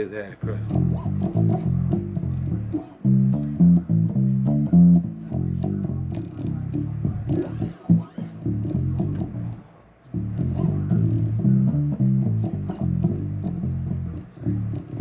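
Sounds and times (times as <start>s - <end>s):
bass guitar riff: 0.4s - 15.0s.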